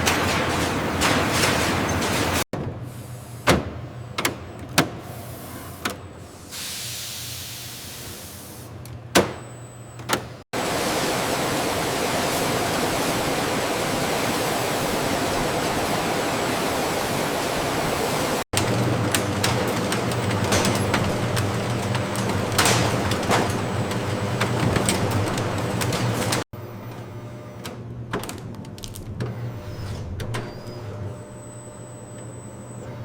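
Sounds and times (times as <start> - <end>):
loud steady machine noise: 10.6 - 26.4.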